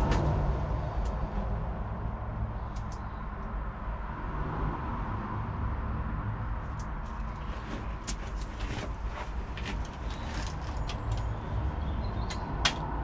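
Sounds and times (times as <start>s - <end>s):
steady low rumble: 0.0s - 13.0s
cable clicks and rustles: 6.6s - 12.9s.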